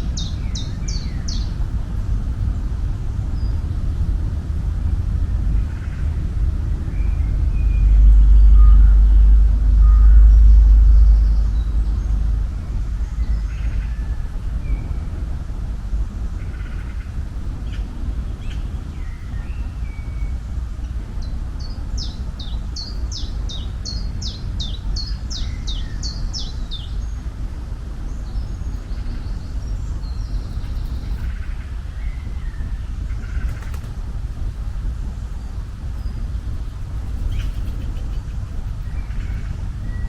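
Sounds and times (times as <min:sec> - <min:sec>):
birds singing: 0:00.0 - 0:01.6, 0:21.2 - 0:27.4, 0:37.0 - 0:40.0
steady low rumble: 0:00.0 - 0:40.0.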